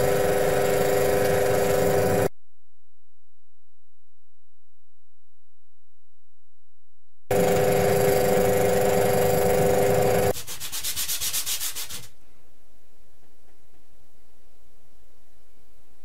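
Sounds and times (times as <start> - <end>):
sander grinding wood: 0.0 - 2.3, 7.3 - 10.3
rhythmic hand sanding strokes: 10.1 - 12.1.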